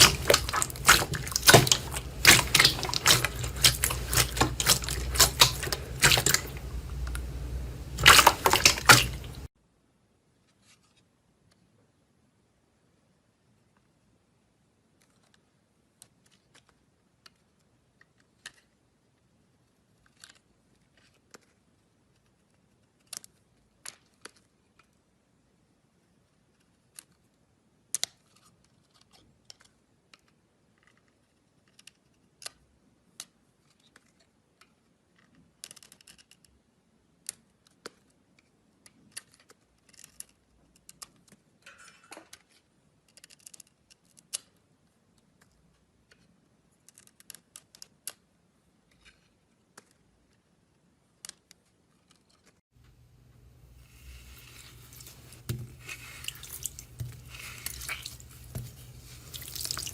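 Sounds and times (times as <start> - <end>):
slime clicking and crackling: 0.0 - 9.5, 53.8 - 59.9
wet squishy slime: 0.0 - 9.5, 52.9 - 59.9.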